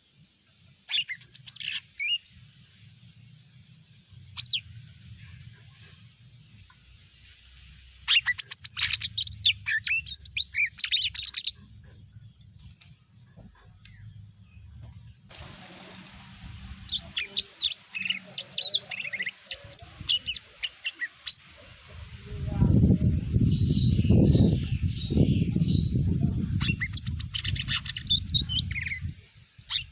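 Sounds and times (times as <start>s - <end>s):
bird singing high chirps: 0.9s - 2.2s, 4.4s - 4.7s, 8.1s - 11.7s, 16.9s - 21.5s, 23.4s - 29.9s.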